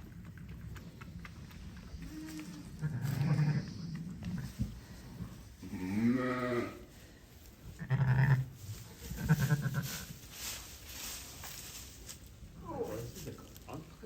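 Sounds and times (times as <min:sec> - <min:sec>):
sheep bleating: 0:07.8 - 0:08.5.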